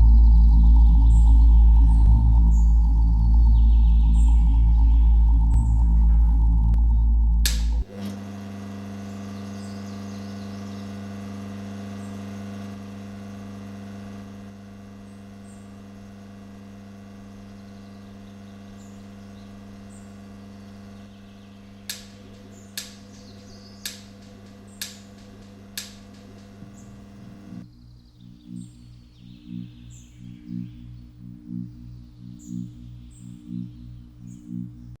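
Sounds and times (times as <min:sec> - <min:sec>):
low electronic drone: 0:00.0 - 0:35.0
sharp clicks: 0:06.4 - 0:08.1, 0:21.8 - 0:27.6.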